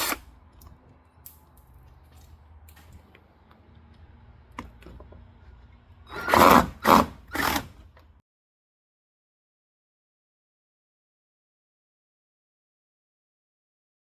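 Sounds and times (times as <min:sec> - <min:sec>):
power drill bursts: 0:00.0 - 0:00.2, 0:06.1 - 0:07.8.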